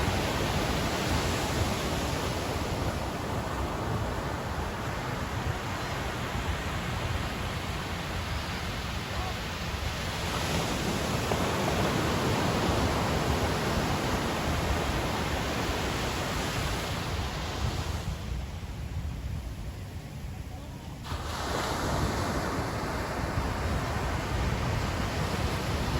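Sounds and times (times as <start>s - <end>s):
ocean surf breaking on beach: 0.0s - 25.9s.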